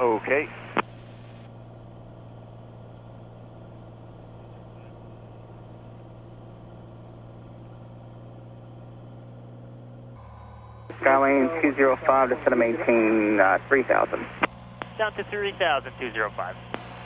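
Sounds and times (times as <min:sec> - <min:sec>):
aircraft piston engine drone: 0:00.0 - 0:08.4, 0:10.2 - 0:17.0.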